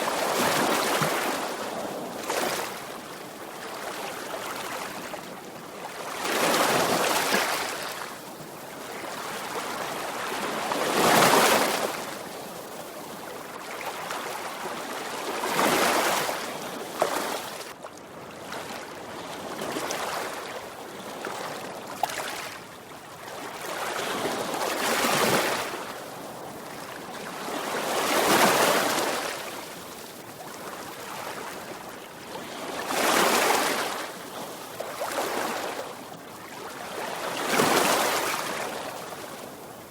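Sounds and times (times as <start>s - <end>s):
sea waves breaking on shore: 23.8s - 39.9s.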